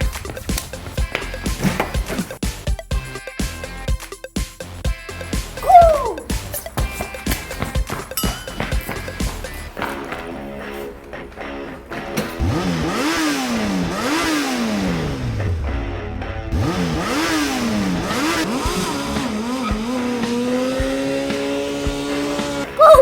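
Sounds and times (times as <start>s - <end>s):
background music: 0.0s - 23.0s
engine revving: 8.8s - 22.8s.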